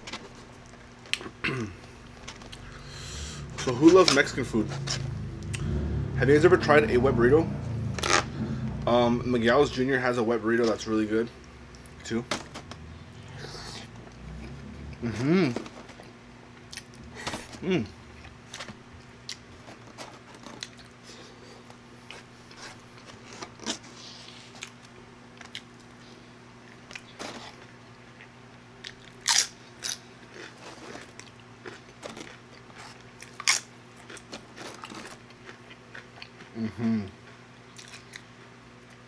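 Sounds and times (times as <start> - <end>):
faint steady hum: 0.0 - 39.0
person chewing with wet mouth sounds: 28.2 - 39.0.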